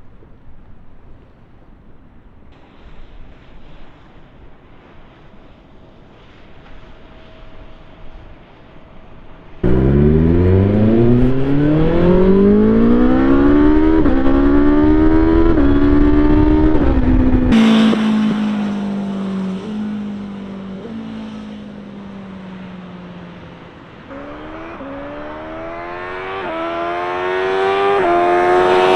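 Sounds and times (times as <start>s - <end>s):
motorcycle accelerating hard: 9.6s - 28.9s.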